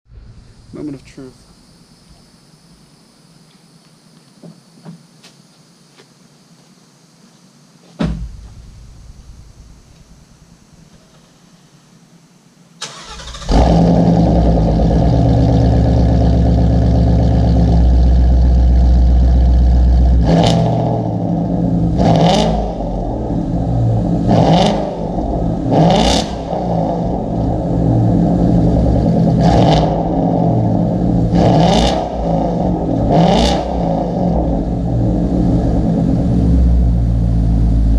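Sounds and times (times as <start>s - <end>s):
car starter cranking: 12.8s - 14.3s
car engine idling: 12.8s - 37.9s
engine revving: 12.8s - 37.9s.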